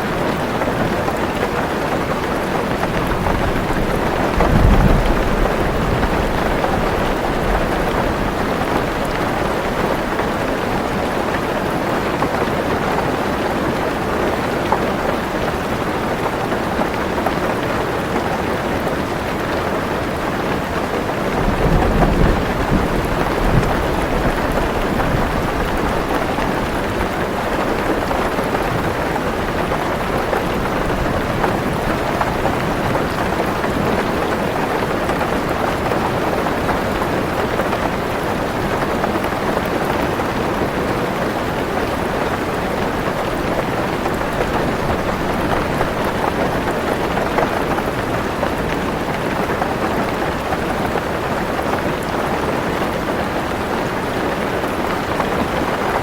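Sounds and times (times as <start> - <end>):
heavy rain on a car roof: 0.0 - 56.0
low thunder rumble: 2.8 - 9.8, 21.3 - 27.1.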